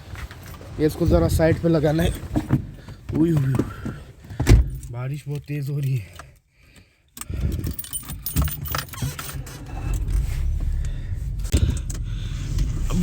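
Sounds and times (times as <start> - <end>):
low rumble: 9.6 - 13.0.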